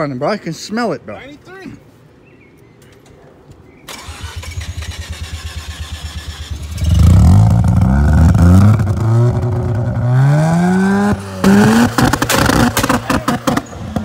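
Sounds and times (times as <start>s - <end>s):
car starter cranking: 3.9s - 7.1s
car engine revving: 4.0s - 14.0s.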